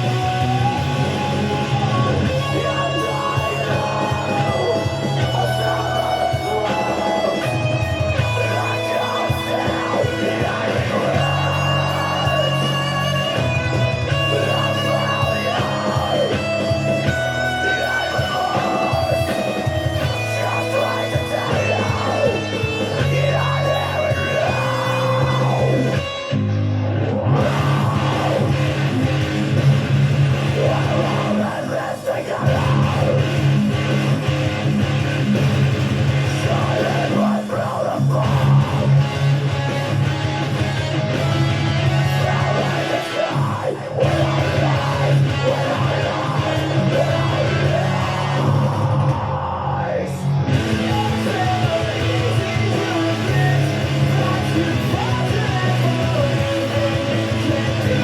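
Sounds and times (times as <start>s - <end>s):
bass: 0.0s - 58.0s
heavy rock guitar: 0.0s - 58.0s.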